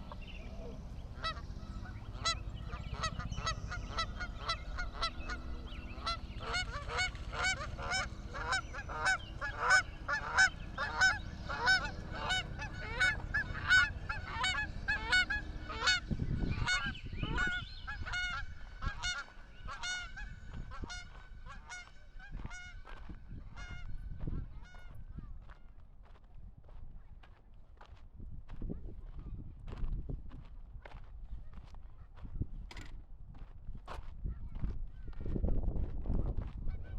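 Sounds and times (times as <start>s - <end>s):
geese honking: 0.0s - 25.0s
low steady hum: 0.0s - 25.4s.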